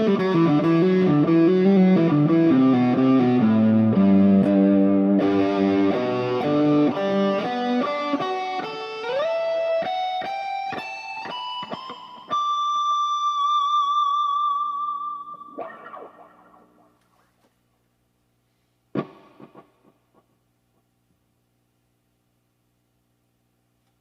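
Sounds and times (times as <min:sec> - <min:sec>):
electric guitar melody: 0:00.0 - 0:17.0, 0:19.0 - 0:20.0.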